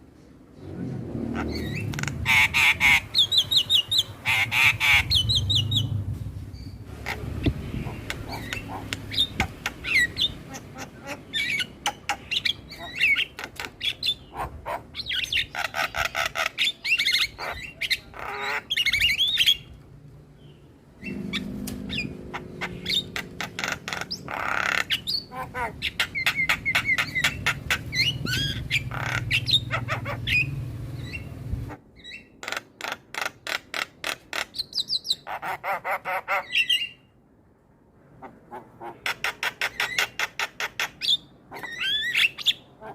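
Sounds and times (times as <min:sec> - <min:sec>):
starlings chattering: 0:01.3 - 0:19.7, 0:20.4 - 0:33.1.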